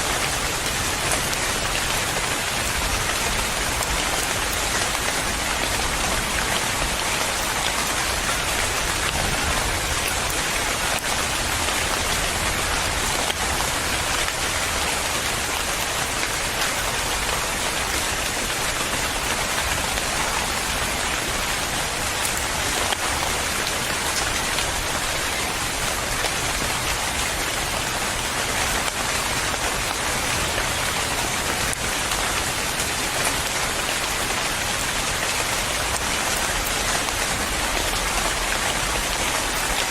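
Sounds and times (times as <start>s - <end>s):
louder raindrops: 0.0s - 39.9s
rain pattering on a surface: 0.0s - 39.9s.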